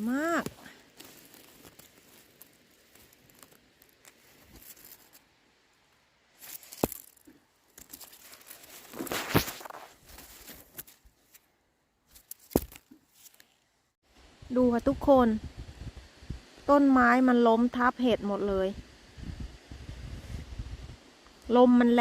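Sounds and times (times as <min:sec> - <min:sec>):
moss and undergrowth rustling: 0:00.0 - 0:13.8.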